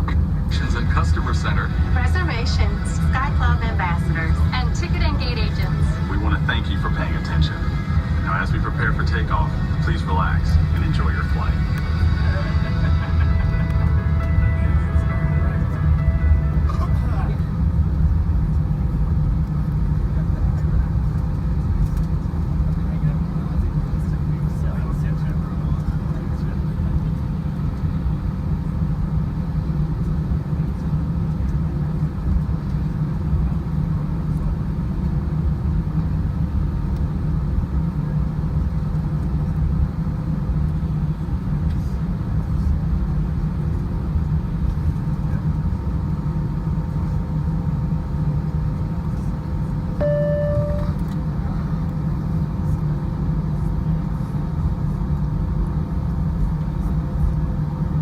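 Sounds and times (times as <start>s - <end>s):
airliner cabin engine rumble: 0.0s - 58.0s
short single tone: 50.0s - 51.2s.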